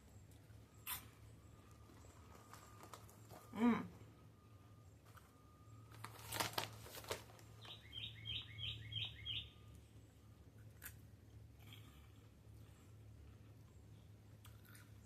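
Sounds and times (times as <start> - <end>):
bird chirping: 7.5 - 9.9.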